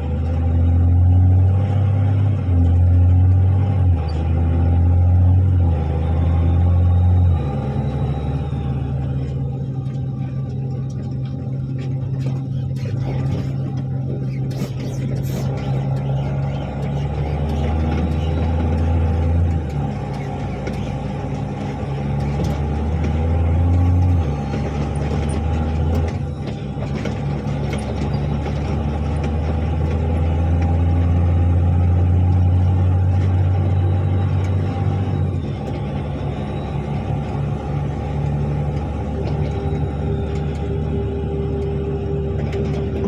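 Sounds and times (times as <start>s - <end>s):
truck diesel engine under load: 0.0s - 43.0s.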